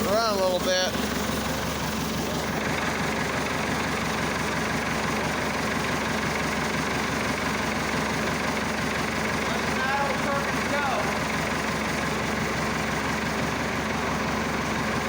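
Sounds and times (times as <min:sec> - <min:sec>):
diesel tractor engine idling: 0:00.0 - 0:15.0.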